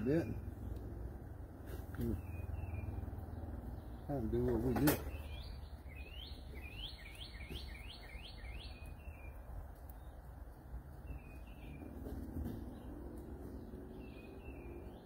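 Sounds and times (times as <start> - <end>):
songbird whistling: 2.0 - 3.4, 4.9 - 9.5.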